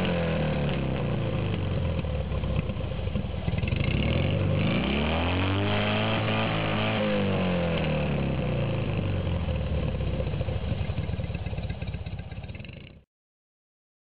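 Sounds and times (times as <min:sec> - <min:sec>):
car engine idling unevenly: 0:00.5 - 0:04.6, 0:08.7 - 0:13.0.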